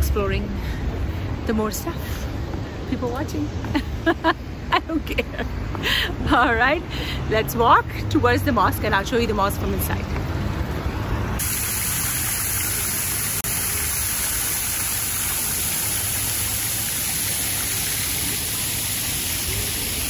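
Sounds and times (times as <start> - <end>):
fountain water splashing: 11.4 - 20.0.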